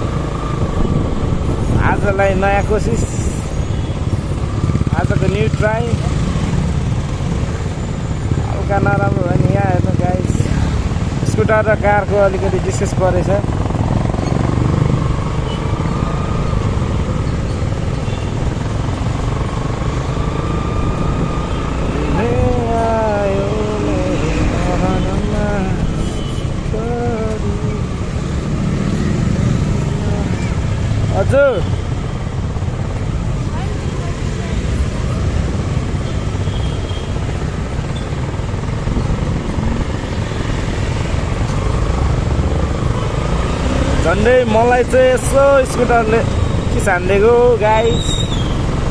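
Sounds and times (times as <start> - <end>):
wind rumble on microphone: 0.0 - 3.5
road noise: 0.0 - 48.9.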